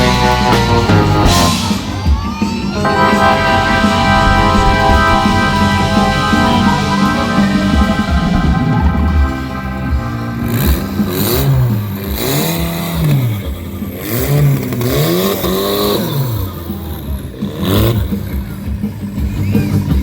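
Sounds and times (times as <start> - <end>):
vehicle engine revving hard: 3.2 - 18.4.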